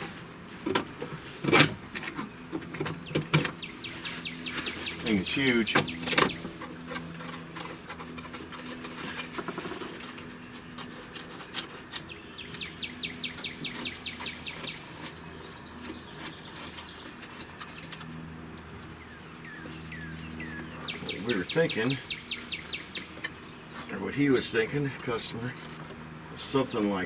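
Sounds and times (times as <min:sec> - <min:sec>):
steady low hum: 0:00.0 - 0:27.0
bird chirping: 0:01.6 - 0:07.8, 0:11.2 - 0:18.2, 0:18.8 - 0:24.9.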